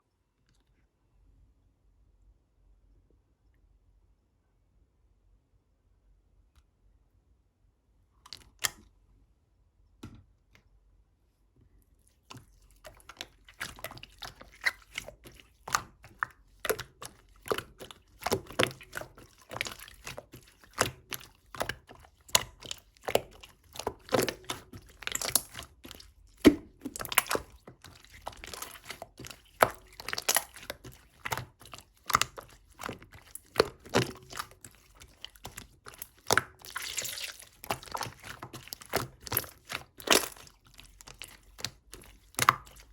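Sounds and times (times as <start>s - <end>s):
handling clicks taps and crunches: 8.2s - 8.9s, 12.2s - 42.9s.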